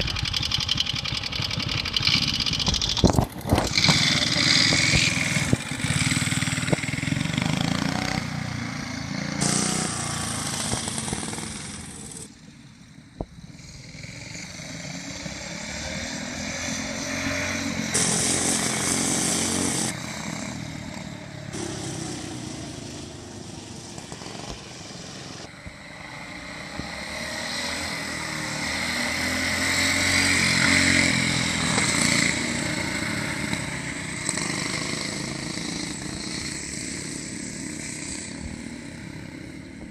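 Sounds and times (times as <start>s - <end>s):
small engines running: 0.0s - 12.4s, 29.4s - 39.9s.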